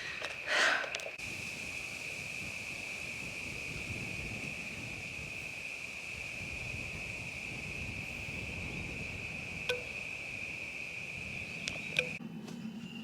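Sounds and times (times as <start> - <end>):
crickets trilling: 0.0 - 13.0
wind rumble on microphone: 1.2 - 12.2.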